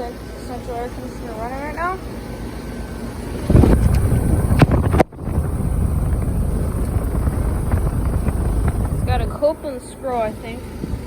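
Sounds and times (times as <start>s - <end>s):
air conditioner fan and compressor: 0.0s - 11.0s
air rushing on microphone: 3.3s - 9.5s.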